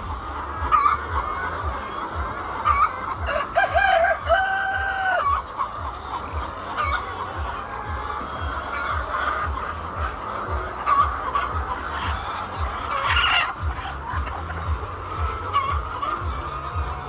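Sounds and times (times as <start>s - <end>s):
hens clucking: 0.0s - 17.0s
rooster crowing: 3.3s - 5.2s.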